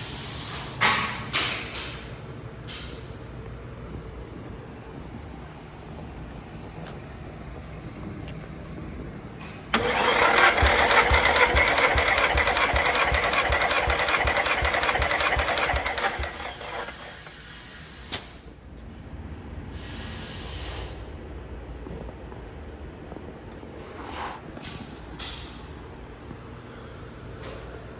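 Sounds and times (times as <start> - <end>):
engine cranking on starter: 9.7 - 17.5
brief hiss: 19.7 - 21.0.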